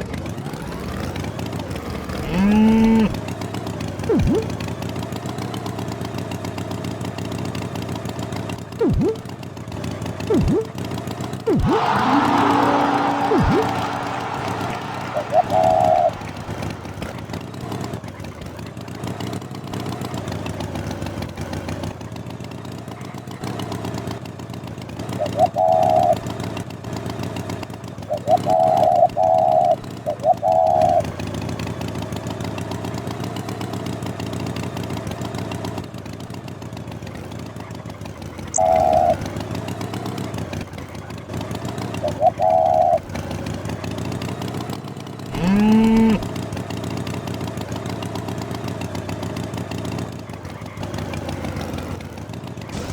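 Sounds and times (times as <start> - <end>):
engine running: 0.0 - 52.9
loud wavering honks: 10.3 - 10.7, 11.5 - 17.7, 45.3 - 46.3.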